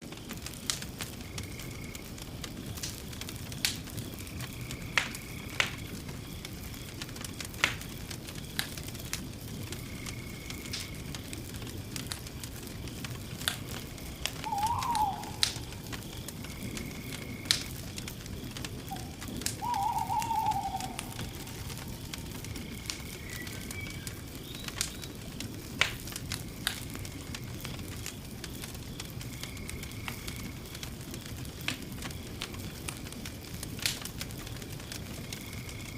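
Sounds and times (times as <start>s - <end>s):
campfire crackling and popping: 0.0s - 35.9s
faint high chirp: 14.4s - 15.4s
short bird calls: 14.4s - 15.8s, 18.9s - 21.7s.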